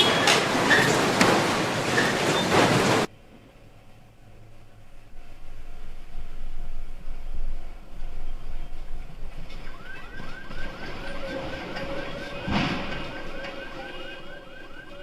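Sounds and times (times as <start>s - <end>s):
car alarm chirps: 9.6s - 15.0s.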